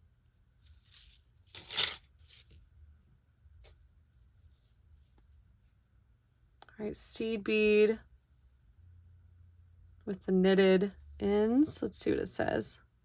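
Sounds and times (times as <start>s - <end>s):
jewelry clattering: 0.0s - 2.5s
jewelry rustling: 0.0s - 5.9s.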